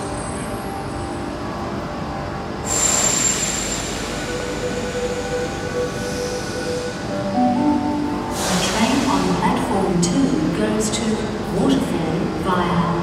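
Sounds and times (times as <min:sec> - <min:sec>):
train hum: 0:00.0 - 0:13.0
train brake hiss with squeal: 0:02.6 - 0:07.2, 0:08.0 - 0:09.4.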